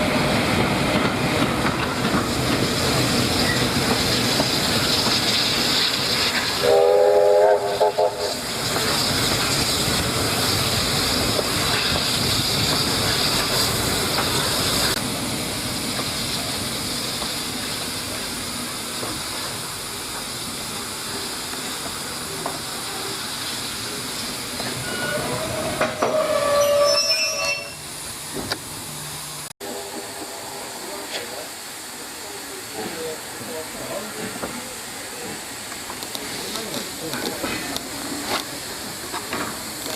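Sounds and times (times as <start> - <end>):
steam hissing: 0.0 - 39.9
steam locomotive whistle: 6.6 - 8.4, 24.8 - 27.9.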